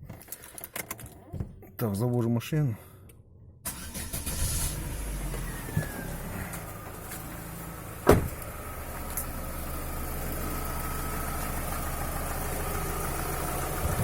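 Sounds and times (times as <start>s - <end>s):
car engine running: 3.7s - 14.0s.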